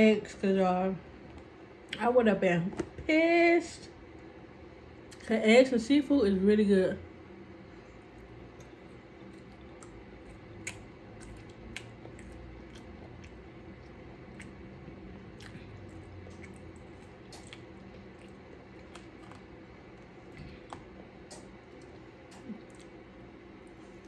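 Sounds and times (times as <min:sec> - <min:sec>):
wet squishy chewing: 0:08.0 - 0:24.0.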